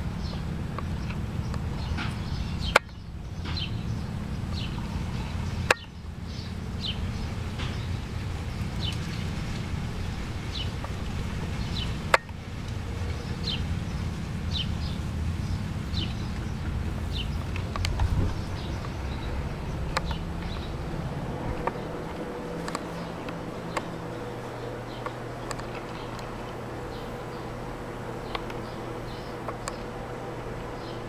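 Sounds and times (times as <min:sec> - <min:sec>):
low rumble: 0:00.0 - 0:29.2
bird chirping: 0:00.0 - 0:31.0
sharp clicks: 0:00.3 - 0:03.7, 0:19.9 - 0:20.7.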